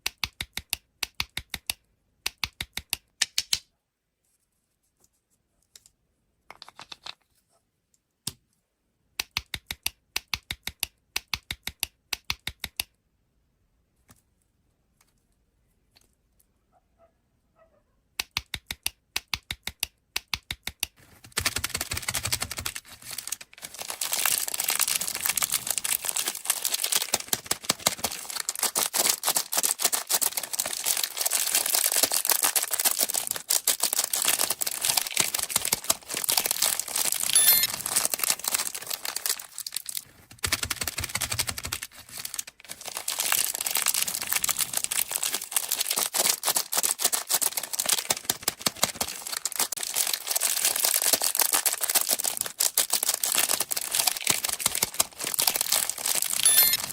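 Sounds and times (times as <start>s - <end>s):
plastic candy wrappers crinkling: 21.0s - 56.9s.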